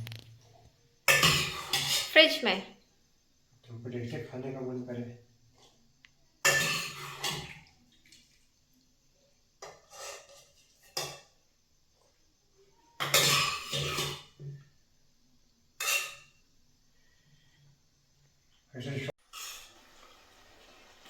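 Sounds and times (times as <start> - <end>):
dishes and utensils clattering: 1.0 - 2.2, 6.4 - 7.8, 9.6 - 11.4, 12.9 - 14.6, 15.8 - 16.4.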